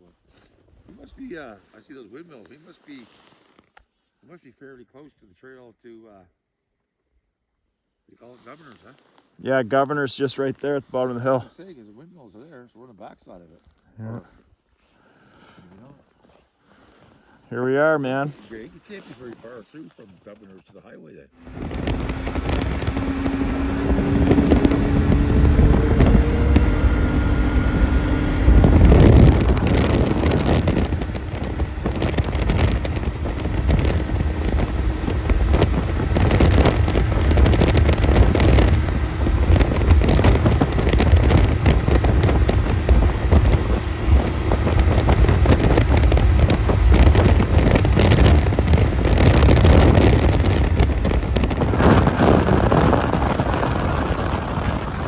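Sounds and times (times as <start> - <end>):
snowmobile engine at speed: 21.4 - 55.0
wind buffeting the microphone: 21.4 - 55.0.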